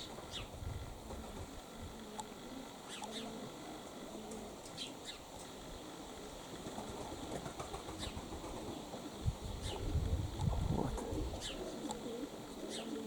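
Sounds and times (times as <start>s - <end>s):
wind buffeting microphone: 0.0s - 2.0s, 9.1s - 11.6s.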